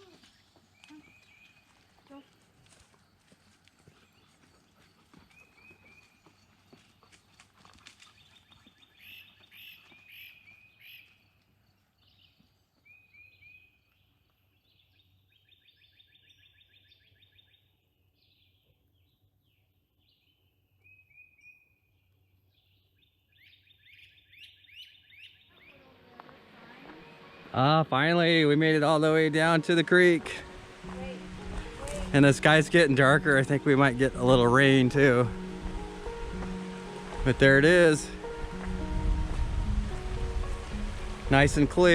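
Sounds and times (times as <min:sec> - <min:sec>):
songbirds singing: 0:00.0 - 0:02.4, 0:03.9 - 0:07.2, 0:08.0 - 0:26.0.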